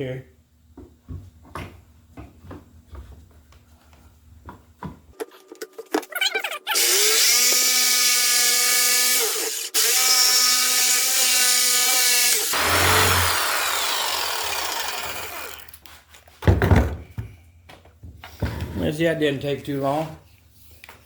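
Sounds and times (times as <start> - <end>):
power tool whining into wood: 6.8 - 15.8.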